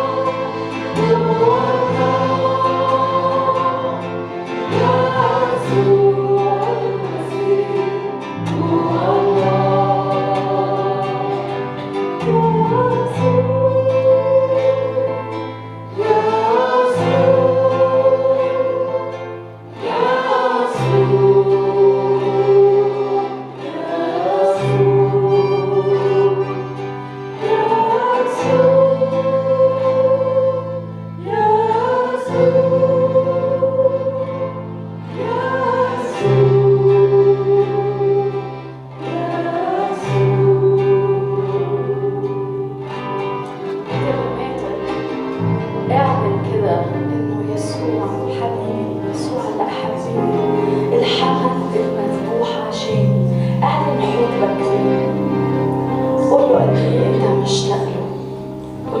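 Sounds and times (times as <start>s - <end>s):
group singing worship song: 0.0s - 59.0s
instrumental accompaniment: 0.0s - 59.0s.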